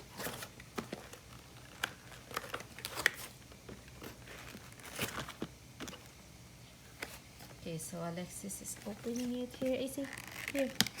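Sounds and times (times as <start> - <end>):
packaging crinkling and rustling: 0.0 - 6.2, 8.8 - 11.0.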